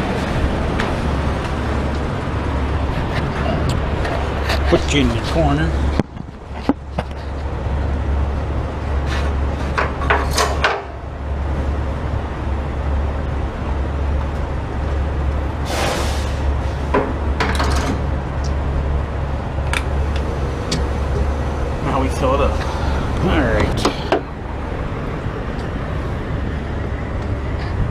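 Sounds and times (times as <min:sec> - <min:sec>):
low rumble: 0:00.0 - 0:09.6, 0:10.9 - 0:27.9
short hiss: 0:15.7 - 0:16.5.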